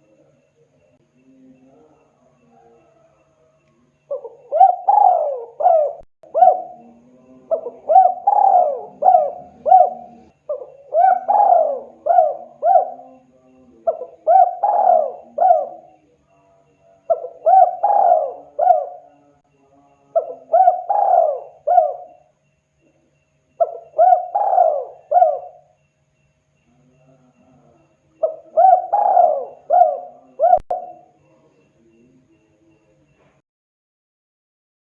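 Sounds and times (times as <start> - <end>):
dove cooing: 4.1 - 16.2, 17.1 - 19.4, 20.1 - 22.3, 23.6 - 25.8, 26.8 - 31.2.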